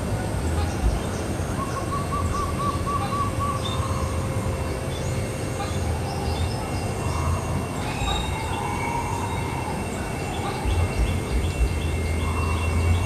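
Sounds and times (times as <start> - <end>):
low rumble: 0.0 - 13.0
dove cooing trill: 0.6 - 4.7
small birds chirping: 0.6 - 13.0.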